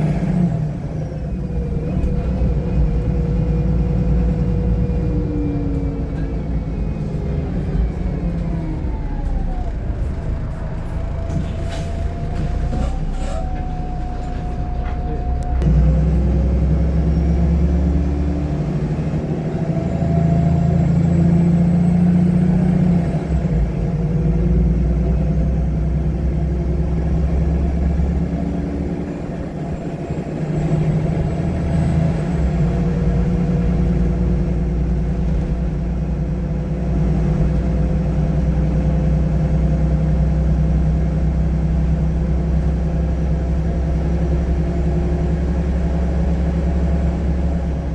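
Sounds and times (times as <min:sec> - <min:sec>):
bus diesel engine from inside: 0:00.0 - 0:47.9.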